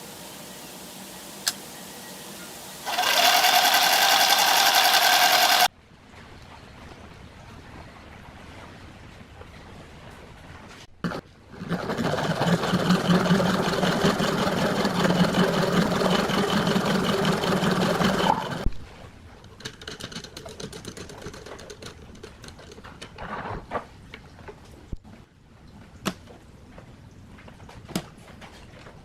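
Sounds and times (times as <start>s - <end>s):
electric power tool motor: 2.8s - 5.7s, 11.6s - 18.6s.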